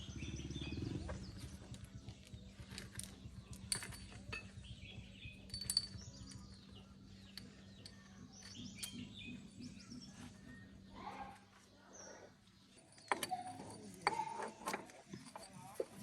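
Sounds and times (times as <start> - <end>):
low steady hum: 0.0 - 14.1
birds chirping: 0.0 - 16.0
light metallic clinks: 1.2 - 10.1, 12.7 - 16.0.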